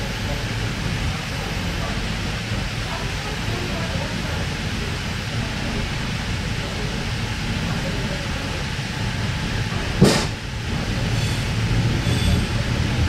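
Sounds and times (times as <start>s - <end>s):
train wheels rumbling on track: 0.0s - 13.0s
sharp knock: 10.0s - 10.4s.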